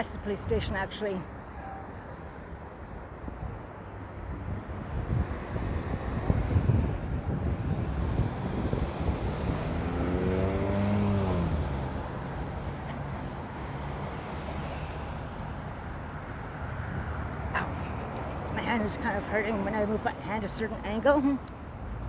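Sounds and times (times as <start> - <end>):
street traffic noise: 0.0 - 22.0
vehicle passing close by: 4.2 - 20.4.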